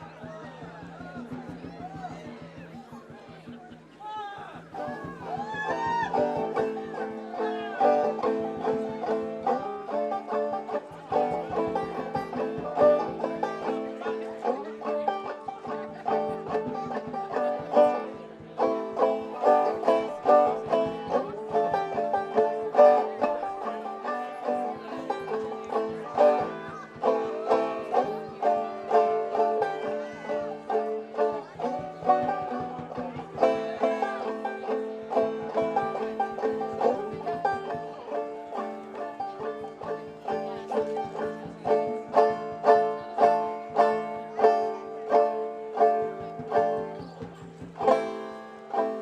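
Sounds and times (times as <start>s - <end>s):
banjo plucking bluegrass: 0.0s - 49.0s.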